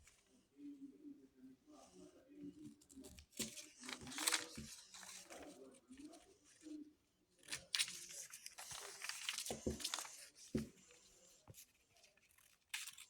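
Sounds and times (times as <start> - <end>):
paper rustling and folding: 2.8 - 6.3, 7.4 - 13.0
sharp paper crinkle: 3.4 - 5.4, 7.5 - 10.3, 12.2 - 13.0.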